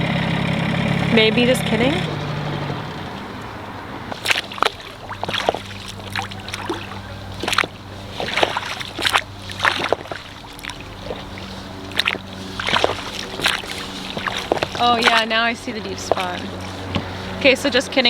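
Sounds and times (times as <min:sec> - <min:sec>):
outboard motor humming: 0:00.0 - 0:18.0
water splashing around boat: 0:00.0 - 0:18.0.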